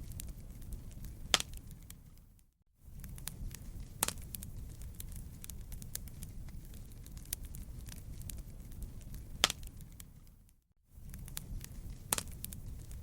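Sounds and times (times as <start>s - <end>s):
fireplace fire crackling: 0.0s - 13.0s
loud pop of fire: 1.3s - 1.6s, 4.0s - 4.5s, 9.1s - 9.8s, 12.0s - 13.0s.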